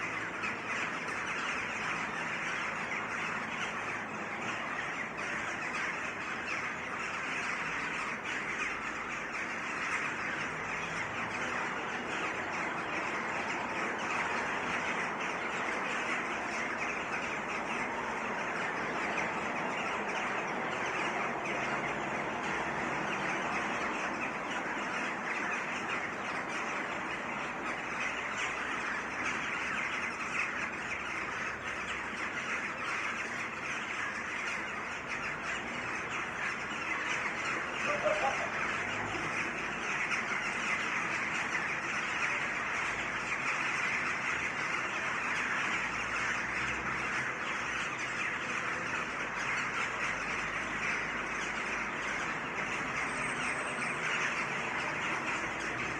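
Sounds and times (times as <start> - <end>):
flock of birds chattering: 0.0 - 55.9.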